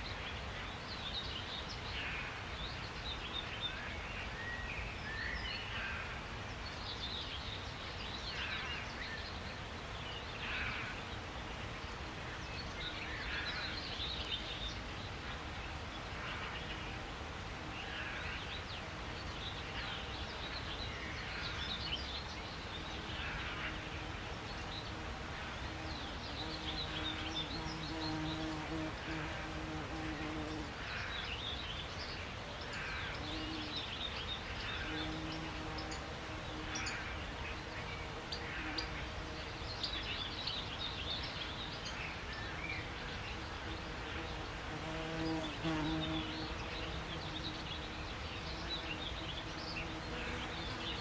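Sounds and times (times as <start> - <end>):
small birds chirping: 17.7 - 51.0.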